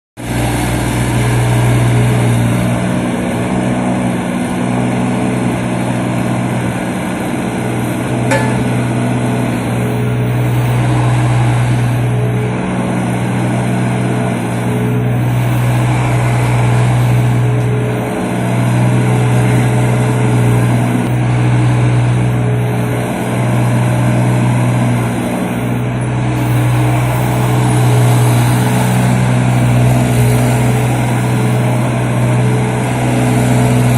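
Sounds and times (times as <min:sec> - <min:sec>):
mini excavator engine running: 0:00.2 - 0:33.9.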